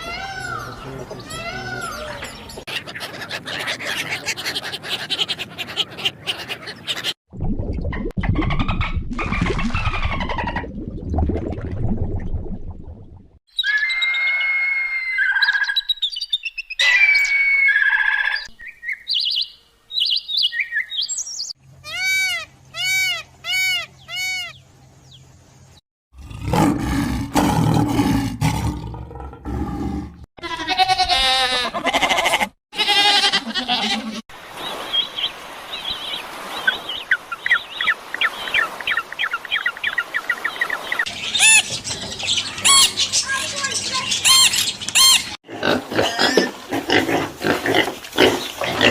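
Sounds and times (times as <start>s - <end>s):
loud low animal roaring: 26.2s - 30.2s
high chirping animal calls: 37.4s - 45.4s.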